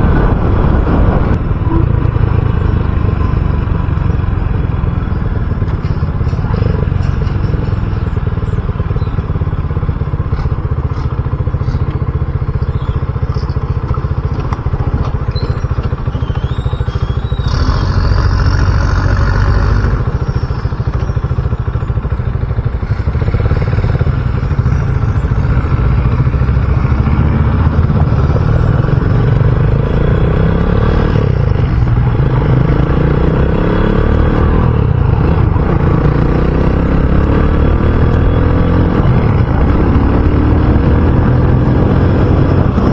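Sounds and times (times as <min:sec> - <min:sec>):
motorcycle engine running: 0:00.0 - 0:42.9
wind and road noise: 0:00.0 - 0:42.9.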